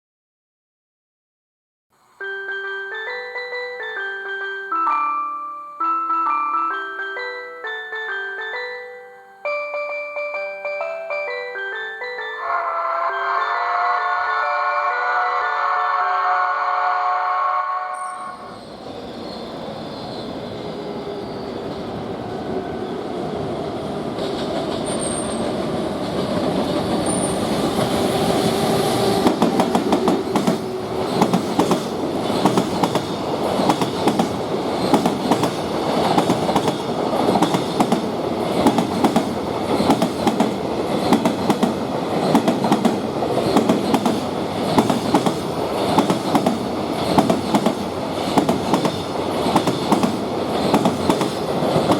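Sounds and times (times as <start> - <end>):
freight train rumble: 18.6 - 51.9
wheels clacking over rail joints: 29.0 - 51.9.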